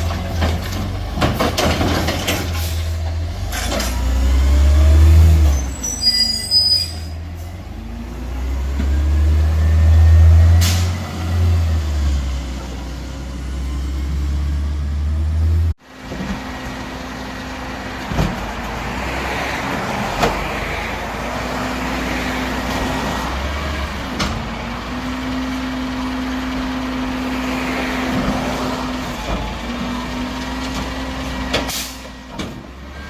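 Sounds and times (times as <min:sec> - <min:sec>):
knocks and clunks: 0:00.0 - 0:02.8
garbage truck engine revving: 0:00.0 - 0:15.7
short high squeal: 0:05.4 - 0:07.2.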